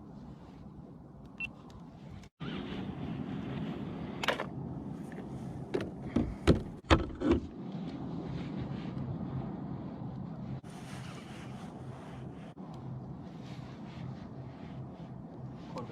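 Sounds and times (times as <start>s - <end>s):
sharp knocks and clunks: 5.7s - 7.5s
steady low hum: 7.5s - 15.9s.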